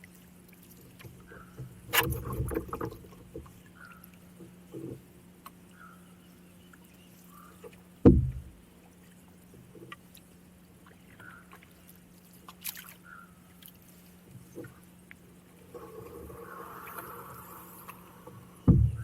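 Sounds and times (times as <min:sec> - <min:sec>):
water lapping: 0:00.0 - 0:19.0
low thump against canoe: 0:01.1 - 0:03.6, 0:08.0 - 0:08.6, 0:18.6 - 0:19.0
paddle knocking: 0:07.6 - 0:08.6, 0:17.8 - 0:19.0.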